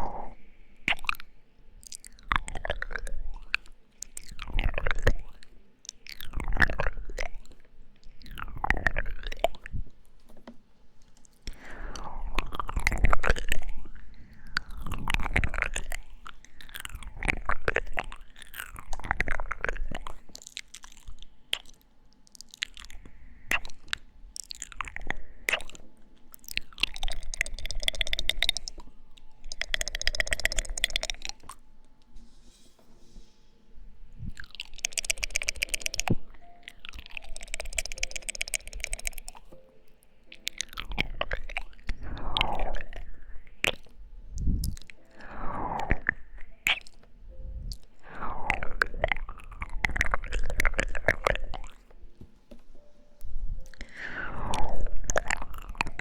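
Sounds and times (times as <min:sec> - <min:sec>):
tongue clicks: 0:00.0 - 0:09.8, 0:11.0 - 0:31.6, 0:34.2 - 0:52.1, 0:53.6 - 0:56.0
wet mouth smacks: 0:11.4 - 0:31.6, 0:34.2 - 0:39.6, 0:40.3 - 0:47.1, 0:47.7 - 0:51.9, 0:53.6 - 0:56.0.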